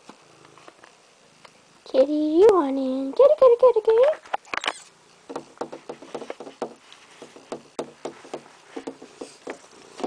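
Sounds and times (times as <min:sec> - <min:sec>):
cat scratching at a door: 0:05.3 - 0:10.0.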